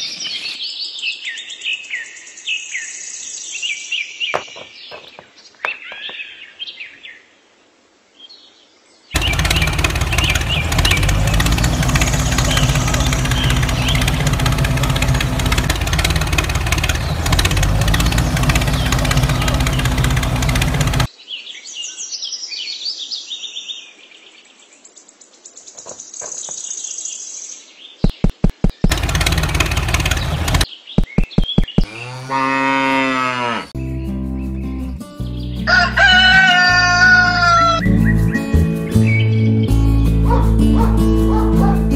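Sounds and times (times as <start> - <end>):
rapid clicking: 9.2 - 21.1, 28.0 - 31.9
small motor running: 9.2 - 21.1, 28.1 - 32.2
cow mooing: 31.8 - 33.8.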